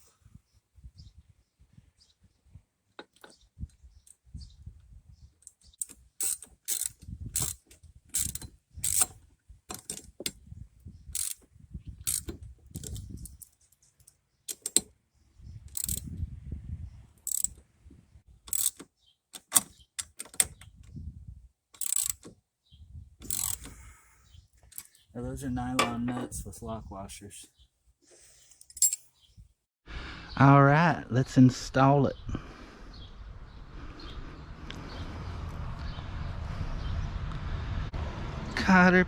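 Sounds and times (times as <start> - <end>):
ratchet wrench clicking: 5.8 - 10.1, 11.2 - 11.4, 12.0 - 13.5, 14.5 - 14.8, 15.7 - 16.1, 17.2 - 17.6, 18.5 - 18.8, 19.4 - 20.5, 21.8 - 22.3, 23.2 - 23.8, 28.7 - 29.0
low knocks and handling noise: 25.7 - 26.4.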